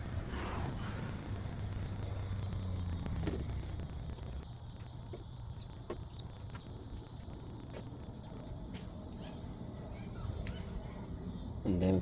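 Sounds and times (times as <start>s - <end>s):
bird calls: 4.5s - 11.4s.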